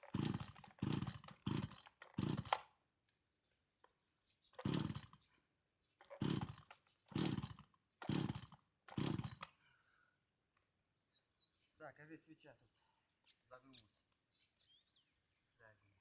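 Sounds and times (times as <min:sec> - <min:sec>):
chainsaw engine cranking: 0:00.0 - 0:02.8, 0:04.5 - 0:05.3, 0:06.0 - 0:09.6.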